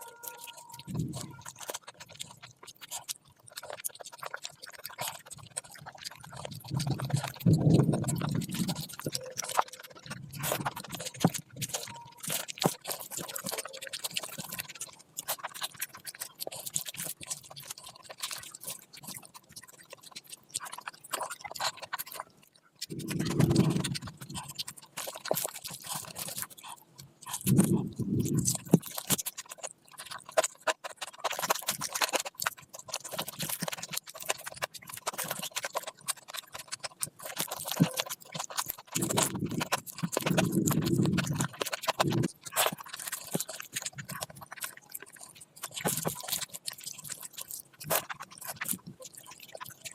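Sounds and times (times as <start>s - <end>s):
wet chewing and mouth clicks: 0.0s - 49.9s.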